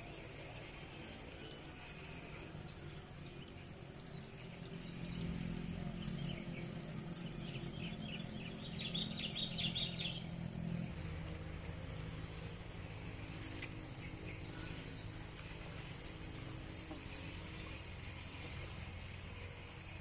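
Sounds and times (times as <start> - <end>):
high insect drone: 0.0 - 20.0
low engine hum: 0.0 - 20.0
bird chirping: 4.1 - 10.4.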